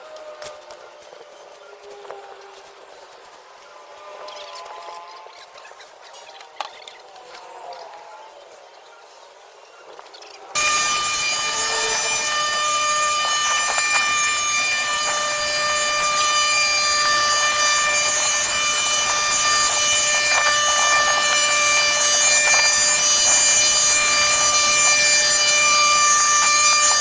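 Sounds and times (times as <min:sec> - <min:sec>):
small motor whining: 0:10.6 - 0:27.0.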